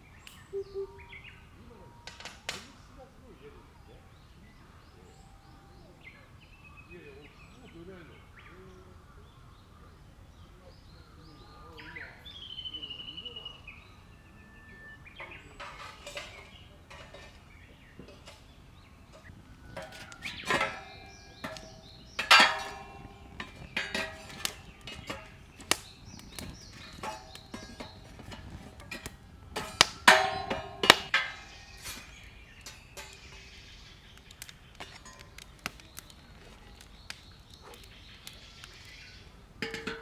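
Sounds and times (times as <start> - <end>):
bird trill: 0.1 - 2.1
metal cookware clinking: 15.2 - 40.0.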